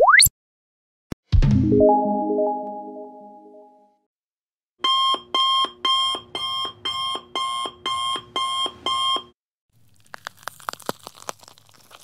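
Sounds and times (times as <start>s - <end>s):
celery snapping and crunching: 9.8s - 12.0s.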